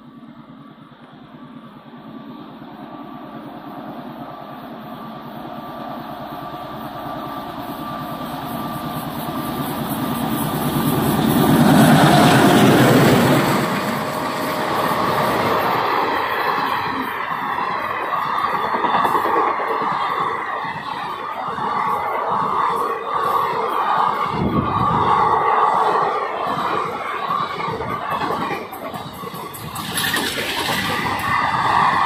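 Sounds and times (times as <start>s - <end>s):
train passing at speed: 0.0s - 32.0s
wheels running over rails: 6.5s - 32.0s.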